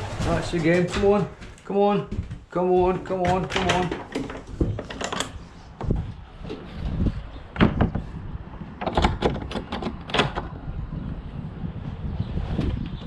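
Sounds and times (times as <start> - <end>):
clattering knocks: 0.0 - 6.6
wind rumbling on microphone: 3.2 - 13.0.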